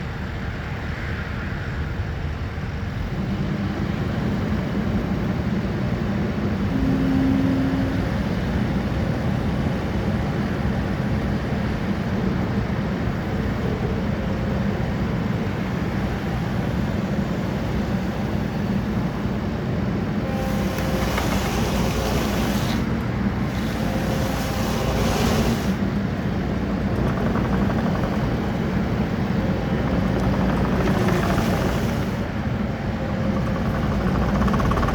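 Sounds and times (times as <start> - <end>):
diesel engine running: 13.1 - 34.9.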